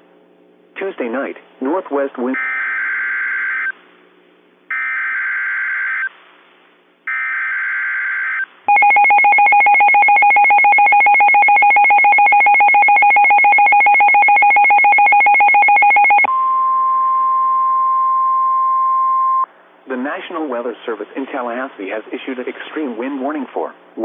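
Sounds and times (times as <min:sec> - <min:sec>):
pulsing two-pitch alarm tone: 0:02.4 - 0:03.7, 0:04.7 - 0:06.1, 0:07.1 - 0:16.4
steady single-pitch alarm tone: 0:02.4 - 0:03.8, 0:04.7 - 0:06.2, 0:07.1 - 0:19.5.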